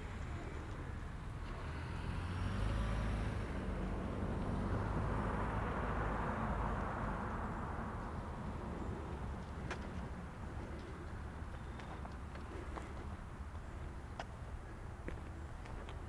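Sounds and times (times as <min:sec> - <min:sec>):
car passing by: 0:01.3 - 0:09.4.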